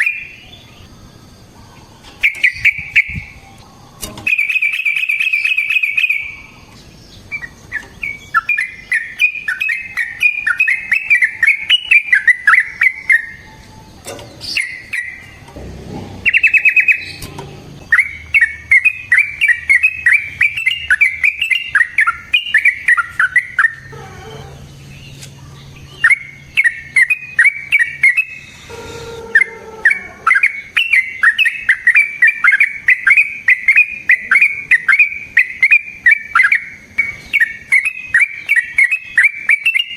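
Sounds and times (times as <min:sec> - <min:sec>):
bulbul singing bubbly notes: 0:14.6 - 0:23.8.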